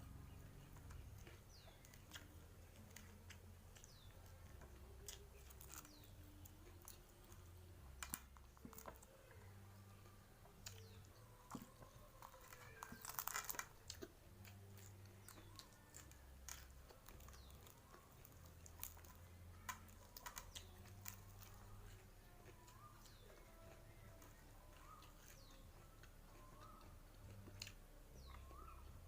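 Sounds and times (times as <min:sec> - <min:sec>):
chewing and mouth clicks: 0:00.2 - 0:29.0
crunchy bite: 0:10.6 - 0:22.0.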